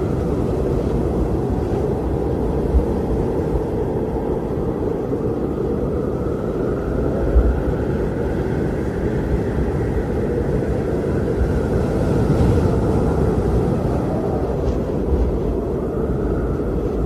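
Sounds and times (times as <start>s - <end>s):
strong wind blowing: 0.0s - 17.0s.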